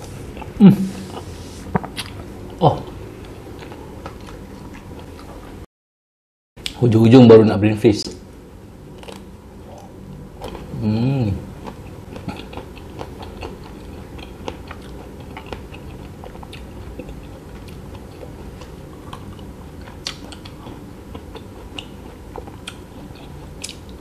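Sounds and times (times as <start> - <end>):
biting and chewing crunchy food: 11.6 - 24.0.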